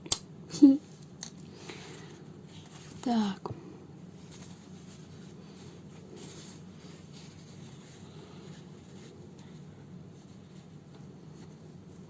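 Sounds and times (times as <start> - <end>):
steady low hum: 0.0 - 12.0
scratchy rustling of fabric sewing: 4.1 - 12.0.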